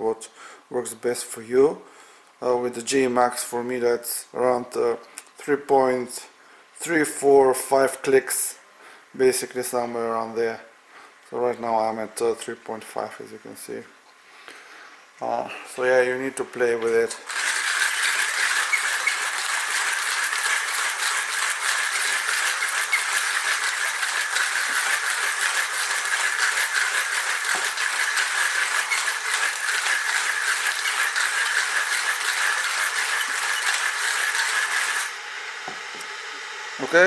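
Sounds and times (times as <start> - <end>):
hand coffee grinder crunching beans: 17.0 - 35.3.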